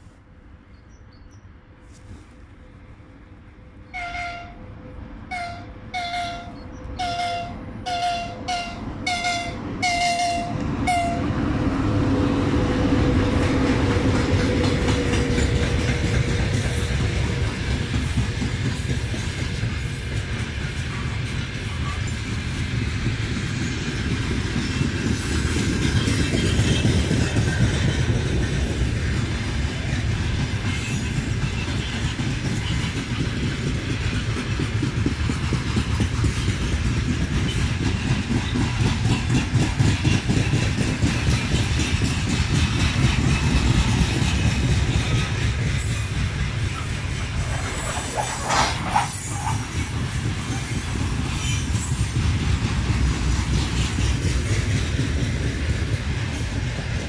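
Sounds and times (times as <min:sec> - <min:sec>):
train wheels clattering over rail joints: 0:13.2 - 0:57.0.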